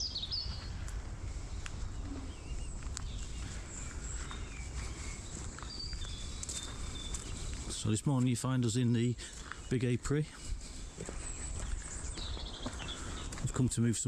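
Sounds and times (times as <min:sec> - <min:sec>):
bird chirps: 0:00.0 - 0:00.8, 0:01.9 - 0:10.2, 0:11.0 - 0:13.8.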